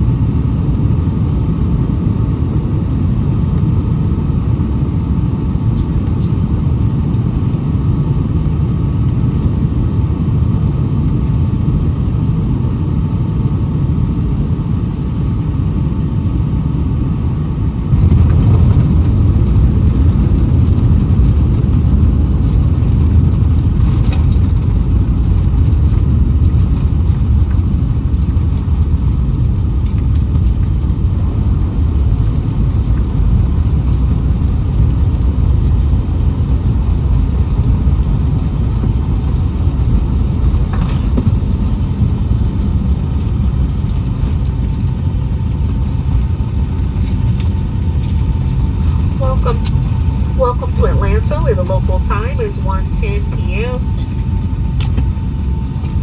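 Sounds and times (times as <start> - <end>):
engine and airflow rumble: 0.0 - 56.0
faint whine: 38.0 - 56.0.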